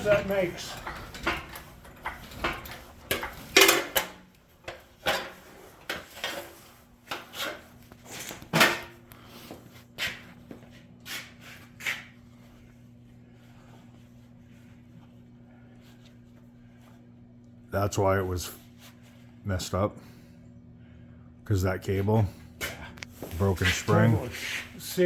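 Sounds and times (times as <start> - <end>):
scraping and knocking of hardware: 0.0 - 8.9
faint steady hum: 0.0 - 25.0.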